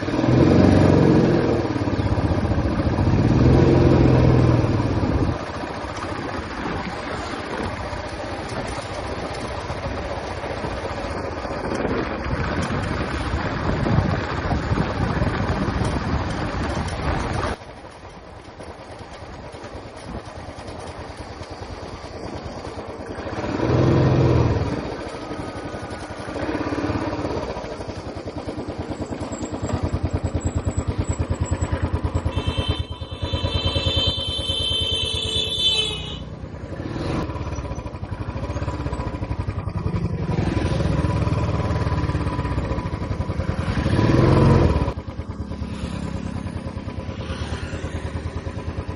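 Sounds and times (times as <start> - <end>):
motorcycle engine running: 0.0 - 48.9
vehicle horn: 32.2 - 36.4.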